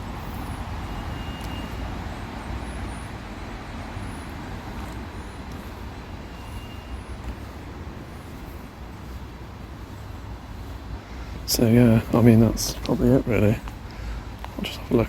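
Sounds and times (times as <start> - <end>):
road traffic rumble: 0.0 - 15.0
faint high chirps: 0.9 - 3.1.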